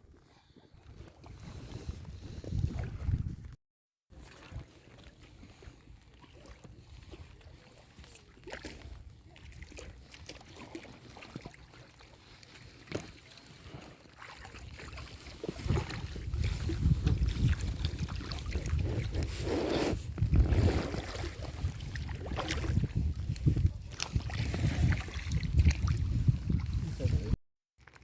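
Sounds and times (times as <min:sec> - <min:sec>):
wind buffeting microphone: 0:00.9 - 0:03.6, 0:15.4 - 0:27.4
paddle splashing water: 0:04.1 - 0:28.0.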